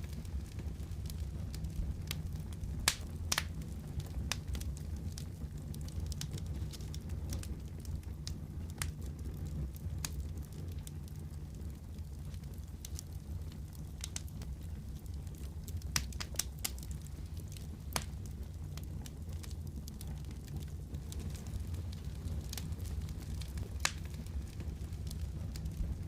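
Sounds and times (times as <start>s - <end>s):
wood fire burning in fireplace: 0.0s - 26.0s.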